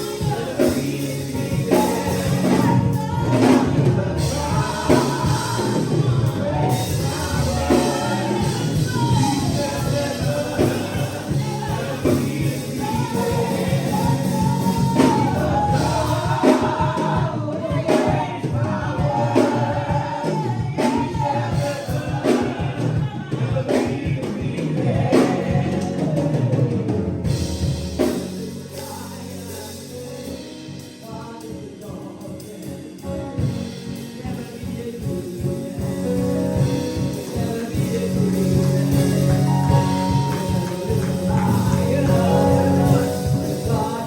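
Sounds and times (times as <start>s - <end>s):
drum-kit beat: 0.0s - 30.1s, 33.5s - 44.0s
gospel choir singing: 0.0s - 44.0s
sustained instrumental music: 36.0s - 44.0s.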